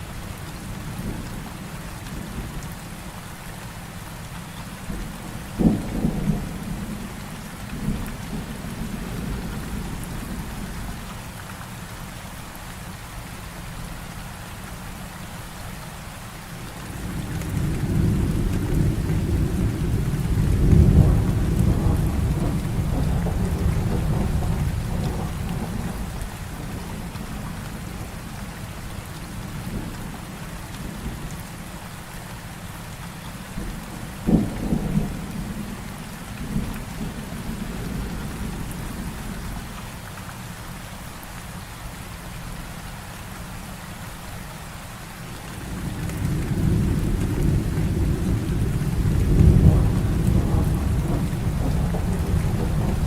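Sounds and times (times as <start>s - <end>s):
heavy rain: 0.0s - 53.0s
low rumble of thunder: 4.8s - 11.1s, 16.7s - 31.5s, 33.5s - 39.9s, 45.4s - 53.0s.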